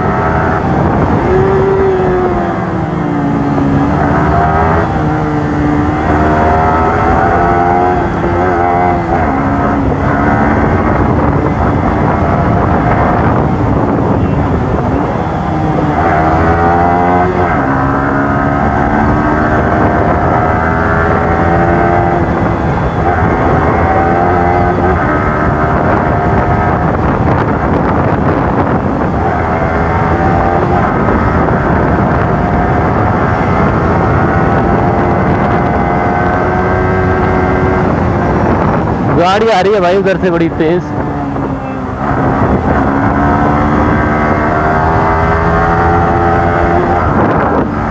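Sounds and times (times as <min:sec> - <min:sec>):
motorcycle engine running: 0:00.0 - 0:47.9
wind noise on microphone: 0:00.0 - 0:47.9.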